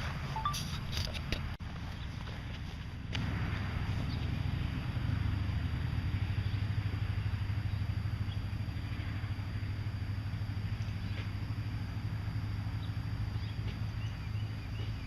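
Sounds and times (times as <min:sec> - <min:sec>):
engine idling: 0:00.0 - 0:15.0
faint high chirps: 0:00.4 - 0:00.8.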